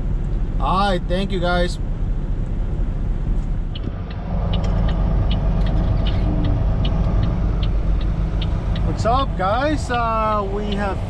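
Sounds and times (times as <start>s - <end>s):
truck diesel engine droning: 0.0s - 11.0s
light regular ticks: 3.7s - 9.0s, 10.7s - 10.9s.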